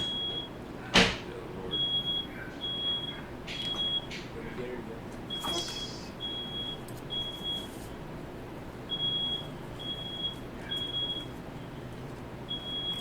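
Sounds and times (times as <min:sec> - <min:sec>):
smoke alarm beeping: 0:00.0 - 0:00.6, 0:01.7 - 0:04.1, 0:05.3 - 0:08.1, 0:08.7 - 0:11.4, 0:12.5 - 0:13.0.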